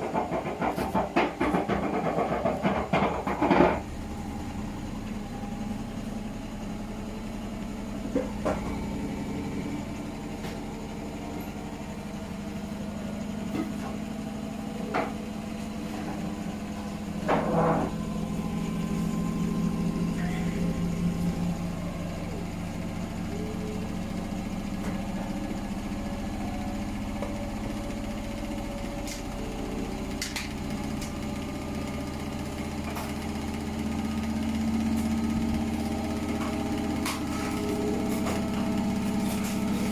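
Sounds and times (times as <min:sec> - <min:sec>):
box knocking in drum: 0:00.0 - 0:03.9
washing machine motor hum: 0:00.0 - 0:39.9.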